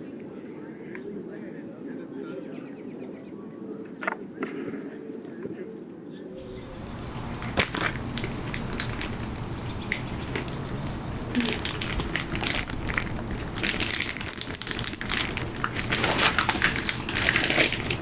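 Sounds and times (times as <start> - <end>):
rustling and crinkling: 6.4 - 18.0.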